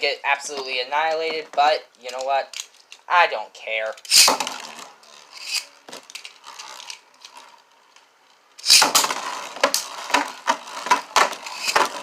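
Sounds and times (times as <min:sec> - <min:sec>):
spinning tops clashing: 0:04.0 - 0:07.1, 0:08.6 - 0:12.0
spinning tops launched: 0:04.1 - 0:05.8, 0:08.6 - 0:12.0.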